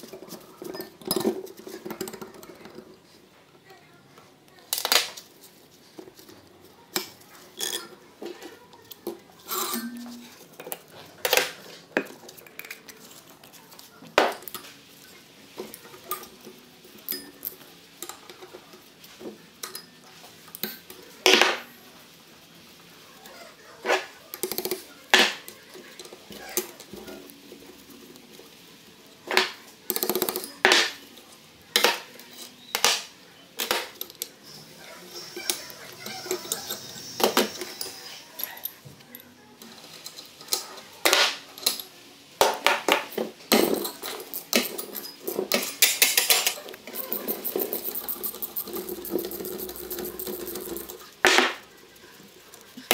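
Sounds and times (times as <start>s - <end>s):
metallic clinks of hand tools: 43.5s - 51.1s.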